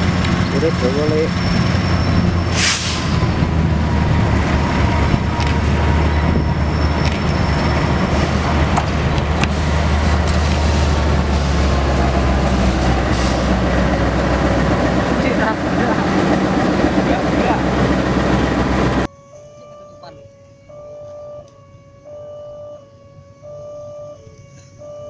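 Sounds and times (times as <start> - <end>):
diesel locomotive engine drone: 0.0 - 25.0
burst of hiss: 2.5 - 3.1.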